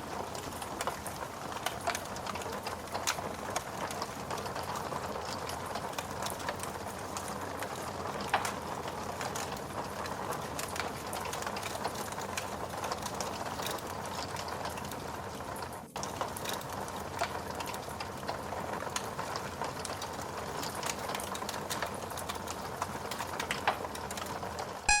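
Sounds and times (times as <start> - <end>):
fire pops: 0.0 - 14.9
wood fire crackling: 0.0 - 24.9.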